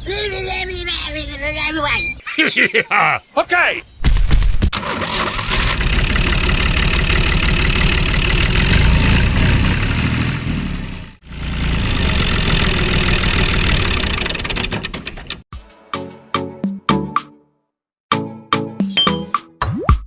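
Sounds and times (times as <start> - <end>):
small tractor motor running: 4.8 - 15.4.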